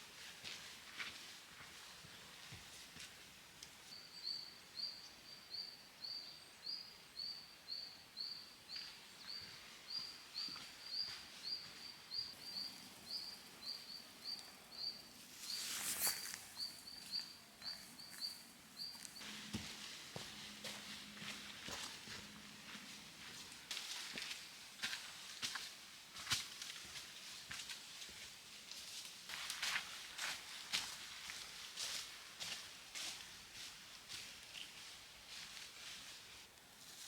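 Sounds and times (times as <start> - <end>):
small bird chirping: 3.9 - 19.2
loud scuff or rustle: 15.4 - 16.5.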